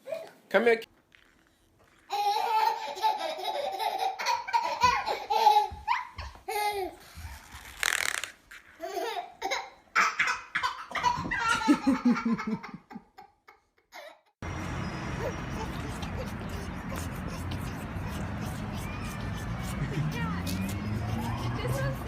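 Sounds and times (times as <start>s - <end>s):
baby laughing: 2.0s - 7.4s, 8.7s - 14.3s, 15.0s - 22.0s
baby squealing: 14.9s - 22.0s.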